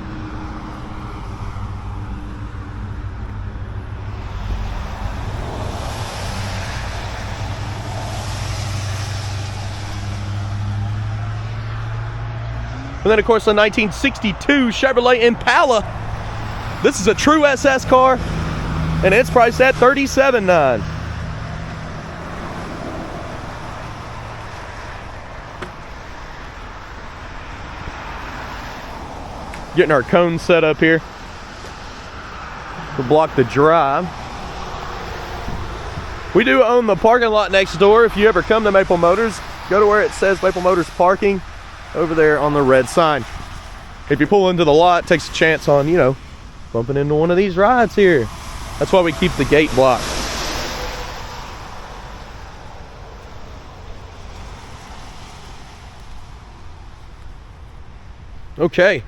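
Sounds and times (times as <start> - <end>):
rain: 0.0 - 13.1, 15.8 - 58.6
low hum: 0.0 - 14.5
low engine hum: 0.0 - 58.6
traffic hiss: 0.0 - 59.0.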